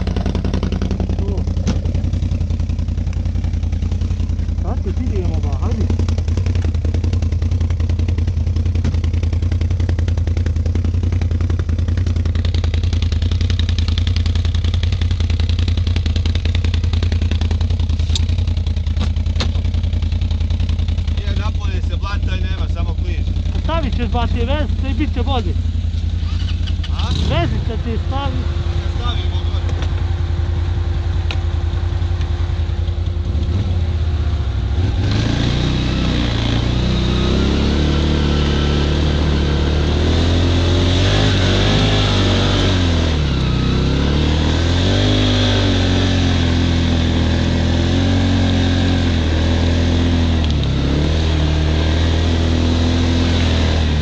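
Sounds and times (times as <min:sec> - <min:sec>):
clatter and rattle: 0:00.0 - 0:22.2
atv engine running: 0:00.0 - 0:54.0.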